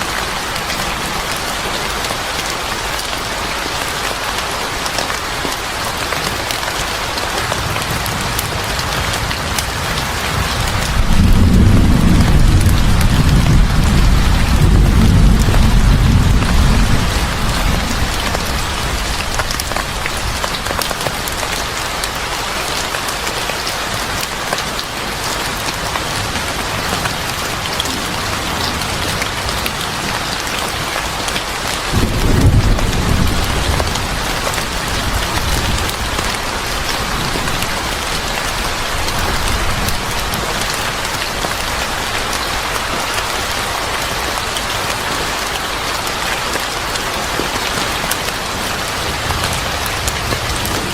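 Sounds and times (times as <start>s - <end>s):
heavy rain pattering: 0.0s - 50.9s
thunder rolling: 7.6s - 20.4s, 26.6s - 30.9s, 31.8s - 37.9s, 48.9s - 50.9s.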